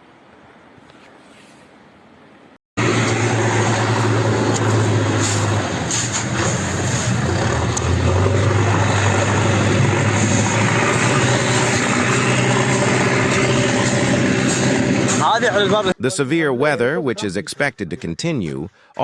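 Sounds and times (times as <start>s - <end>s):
engine running with rushing noise: 2.8s - 16.0s.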